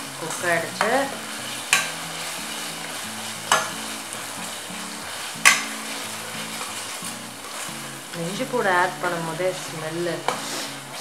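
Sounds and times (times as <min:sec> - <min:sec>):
background music: 0:00.0 - 0:11.0
food sizzling in oil: 0:00.0 - 0:11.0
spatula knocking against pot: 0:01.7 - 0:02.0, 0:05.4 - 0:05.8.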